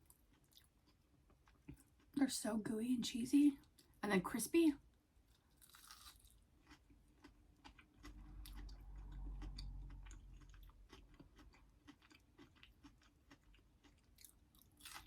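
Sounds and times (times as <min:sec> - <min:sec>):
quiet chewing with crunches: 0:00.0 - 0:02.2, 0:05.2 - 0:15.0.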